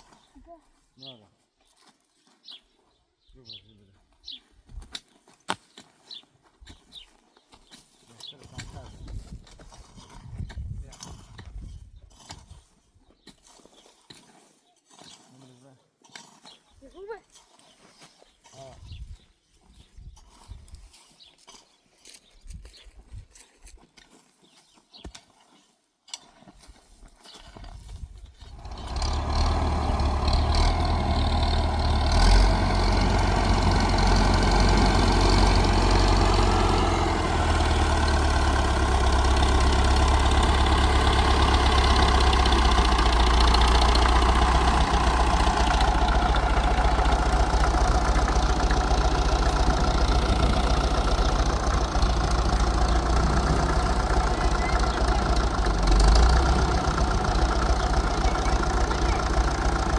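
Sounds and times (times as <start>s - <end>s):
heavy engine humming: 28.4s - 59.9s.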